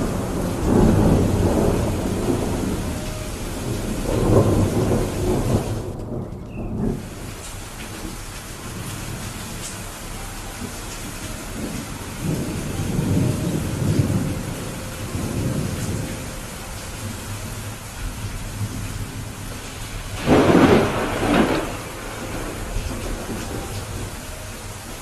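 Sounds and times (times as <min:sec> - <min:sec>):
sharp thunderclap: 0:00.0 - 0:02.9, 0:03.6 - 0:07.2, 0:18.2 - 0:24.1
steady rain: 0:00.0 - 0:25.0
thunder rumbling: 0:00.0 - 0:25.0.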